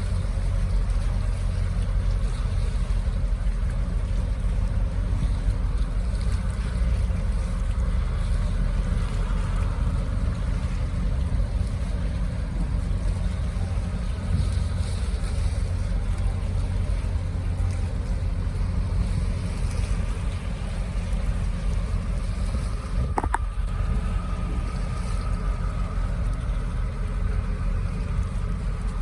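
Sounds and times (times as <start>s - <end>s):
faint steady hum: 0.0s - 29.0s
ship engines rumbling: 0.0s - 29.0s
water noise: 0.0s - 29.0s
wind: 0.0s - 29.0s.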